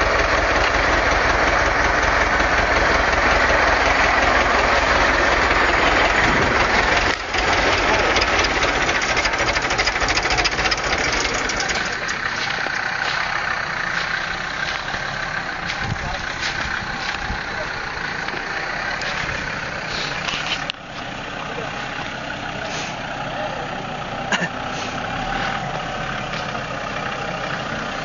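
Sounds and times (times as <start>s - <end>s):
engine running hard: 0.0s - 28.0s
fast knocking clatter: 5.2s - 12.2s.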